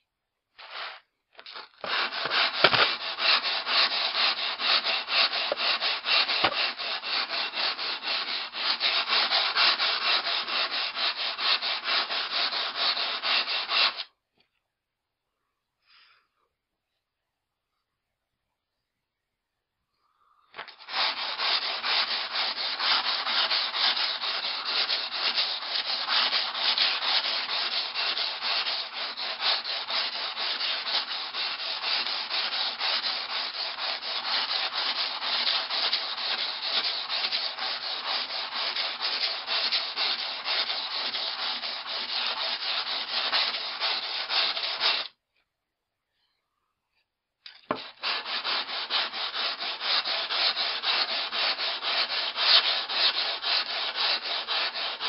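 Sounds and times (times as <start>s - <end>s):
axe rubbing on sandpaper: 0.6s - 14.1s, 20.6s - 45.1s, 47.7s - 55.0s.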